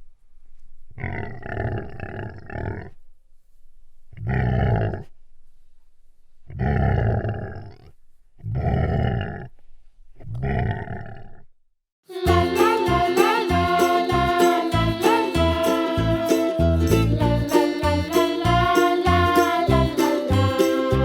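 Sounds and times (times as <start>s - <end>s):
dinosaur roars: 1.0s - 3.0s.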